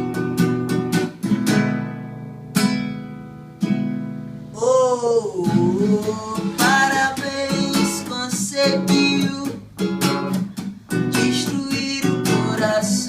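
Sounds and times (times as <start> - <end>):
acoustic guitar strumming: 0.0 - 13.0
person singing: 4.5 - 9.6, 11.0 - 13.0.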